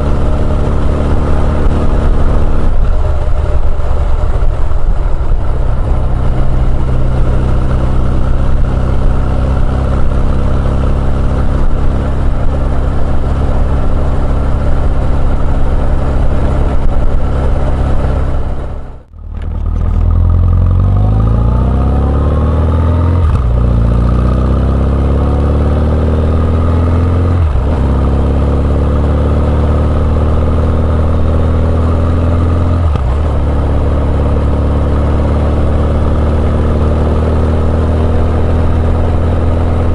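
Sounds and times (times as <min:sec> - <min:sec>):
motorcycle engine with gear shifts: 0:00.0 - 0:39.9.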